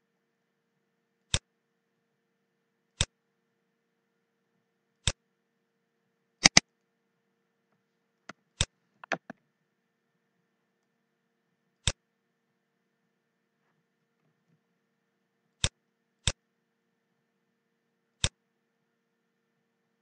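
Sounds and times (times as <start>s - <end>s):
computer mouse clicking: 6.4s - 6.6s, 8.6s - 9.3s.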